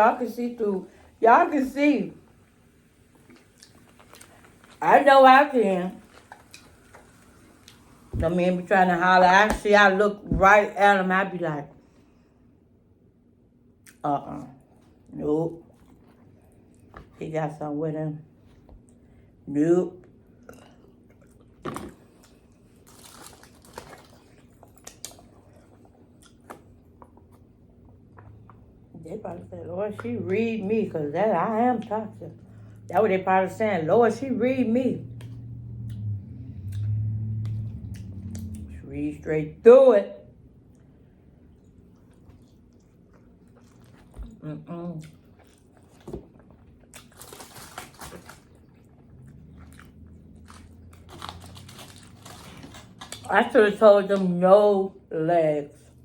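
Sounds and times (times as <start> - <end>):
wet mouth eating sounds: 3.2 - 4.8, 20.4 - 28.9, 35.2 - 38.7, 40.7 - 53.3
lip-smacks and chewing clicks: 3.3 - 4.8, 23.7 - 28.7.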